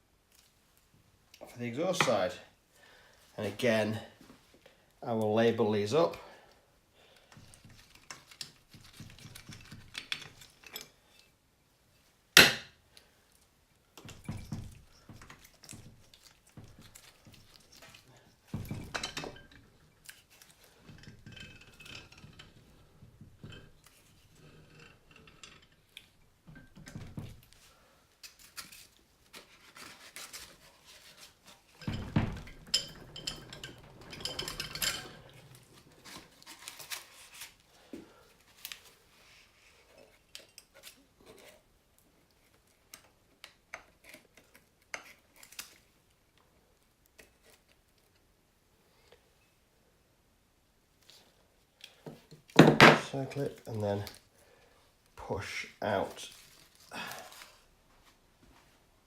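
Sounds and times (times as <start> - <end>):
metal tools clinking: 16.6 - 25.9, 31.8 - 37.0.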